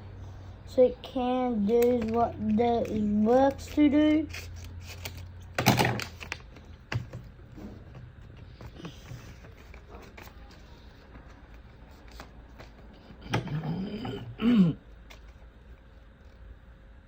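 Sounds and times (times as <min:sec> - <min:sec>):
paper being handled and folded: 0:01.6 - 0:13.2.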